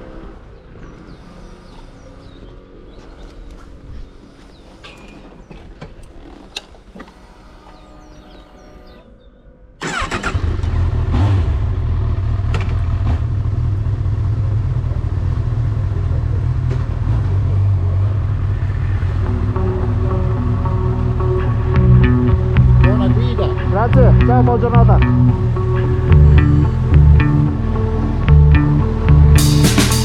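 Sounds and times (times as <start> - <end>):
motorcycle engine starting and running: 9.8 - 30.0.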